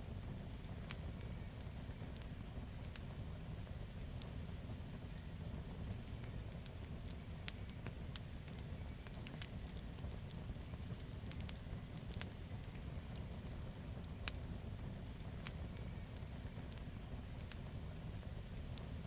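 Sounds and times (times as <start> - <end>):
burning wood crackling and popping: 0.0 - 19.0.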